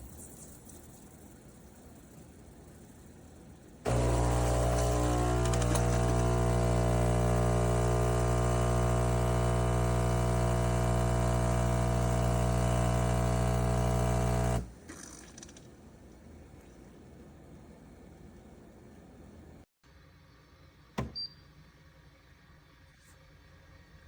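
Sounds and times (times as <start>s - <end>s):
espresso machine humming: 3.9s - 14.7s.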